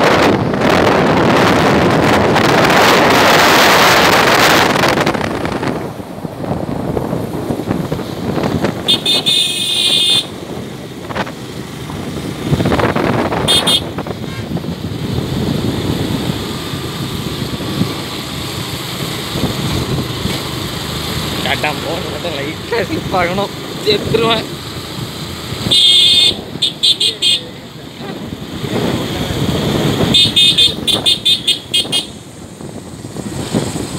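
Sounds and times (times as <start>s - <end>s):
wind rush: 0.0s - 25.7s, 27.9s - 33.9s
engine and road noise: 0.0s - 33.9s
motorcycle running: 0.0s - 33.9s
vehicle horn beeps: 8.8s - 10.3s, 13.4s - 14.5s, 25.6s - 27.5s, 30.1s - 32.2s.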